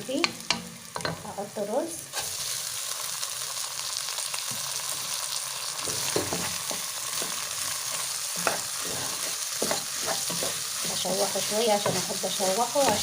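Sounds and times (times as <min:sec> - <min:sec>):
rice sizzling in a pot: 0:00.0 - 0:13.0
stirring scrapes: 0:08.4 - 0:13.0.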